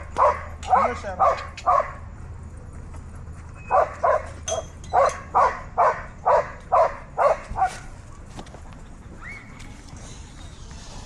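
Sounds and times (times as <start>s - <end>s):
dog barking: 0.2s - 2.0s, 3.7s - 7.9s.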